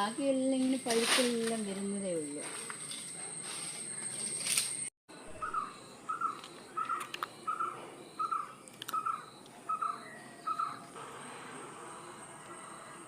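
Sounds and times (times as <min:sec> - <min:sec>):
bird calling: 0:05.2 - 0:11.0.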